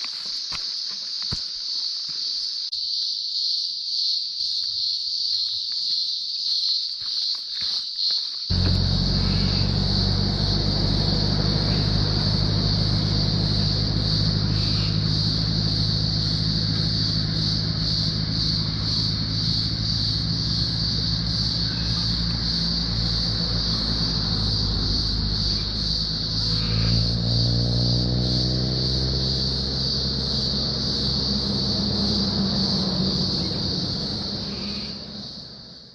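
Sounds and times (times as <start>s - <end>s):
cicadas droning: 0.0s - 35.9s
car engine running: 8.5s - 35.9s.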